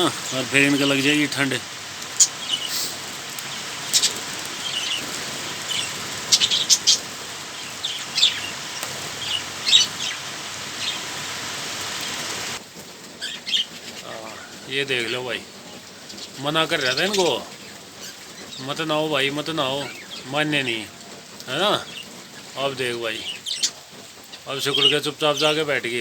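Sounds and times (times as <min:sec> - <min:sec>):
birds splashing in water: 0:00.0 - 0:12.6.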